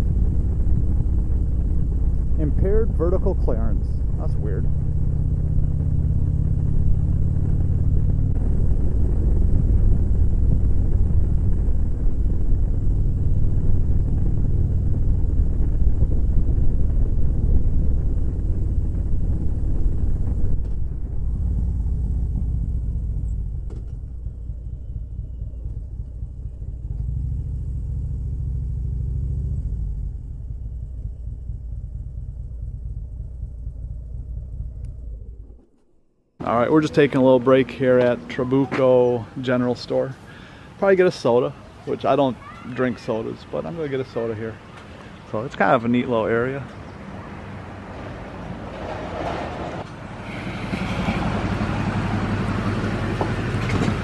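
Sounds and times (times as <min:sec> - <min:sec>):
motorcycle engine running: 0:00.0 - 0:36.9.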